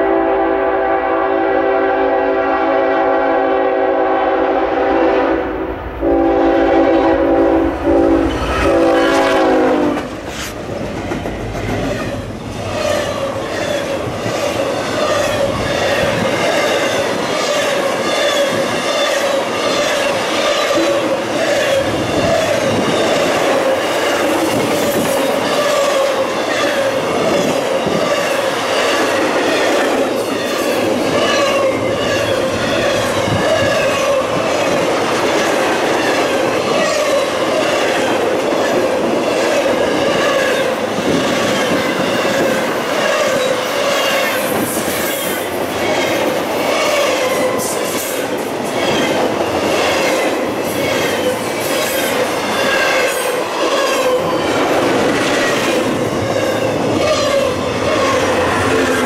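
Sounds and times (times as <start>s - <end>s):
freight train wheels on rail: 0.0s - 59.0s.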